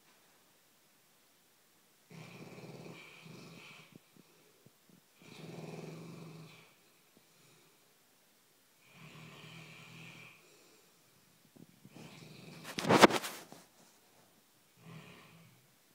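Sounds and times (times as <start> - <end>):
dog snoring: 2.1 - 4.4, 5.2 - 7.8, 8.8 - 10.8, 11.9 - 13.2, 14.8 - 15.6.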